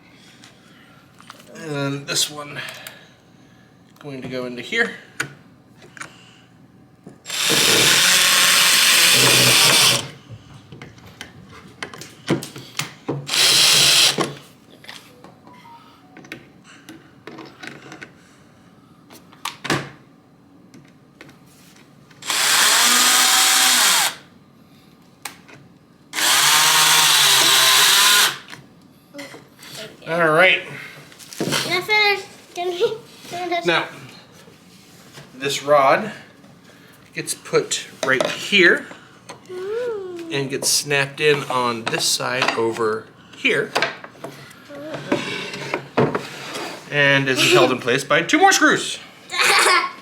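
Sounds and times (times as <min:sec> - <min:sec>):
power drill driving screws into wood: 0:07.3 - 0:10.2, 0:13.3 - 0:14.4, 0:22.2 - 0:24.3, 0:26.2 - 0:28.5.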